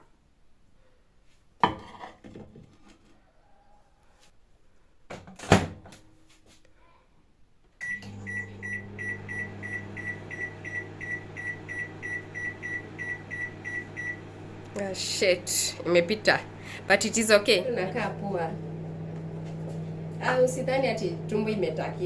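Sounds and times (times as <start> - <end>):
microwave humming: 7.8 - 22.0.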